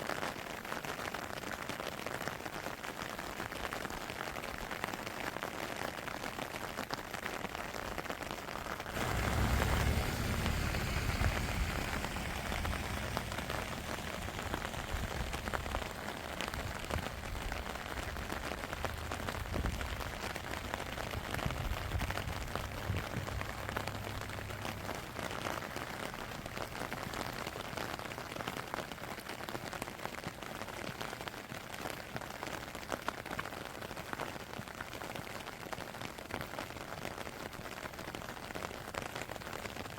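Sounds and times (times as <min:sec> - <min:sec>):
steady rain falling: 0:00.0 - 0:39.9
low rumble: 0:09.0 - 0:27.8.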